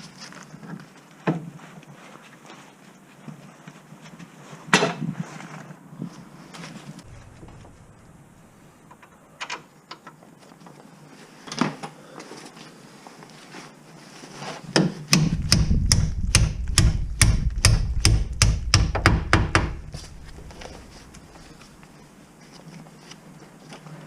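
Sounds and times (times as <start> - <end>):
low rumble: 7.0 - 8.9, 15.2 - 21.9
hand tool knocking: 15.1 - 20.8.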